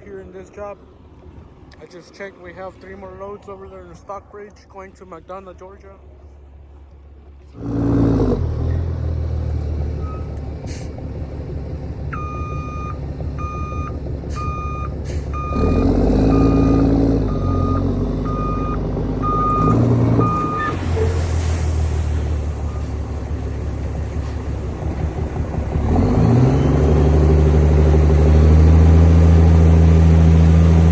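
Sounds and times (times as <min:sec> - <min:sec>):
diesel truck engine: 0:07.2 - 0:30.9
backup alarm beeping: 0:10.0 - 0:10.3, 0:12.1 - 0:20.8, 0:22.5 - 0:23.3.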